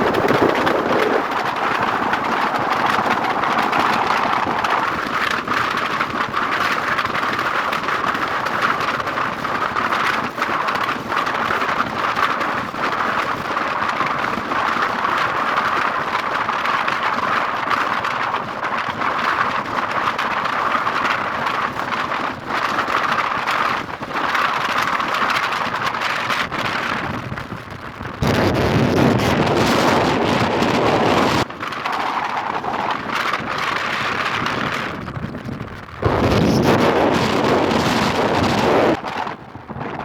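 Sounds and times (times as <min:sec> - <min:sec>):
wind buffeting microphone: 0:00.0 - 0:40.0
vehicle driving at road speed: 0:27.4 - 0:39.6.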